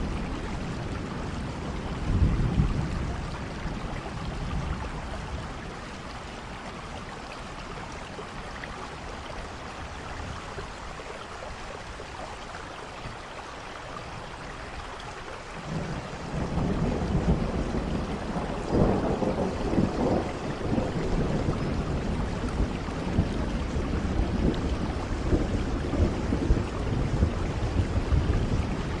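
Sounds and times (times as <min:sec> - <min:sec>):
thunder rumbling: 0:00.0 - 0:06.9, 0:15.6 - 0:29.0
steady rain: 0:00.0 - 0:29.0.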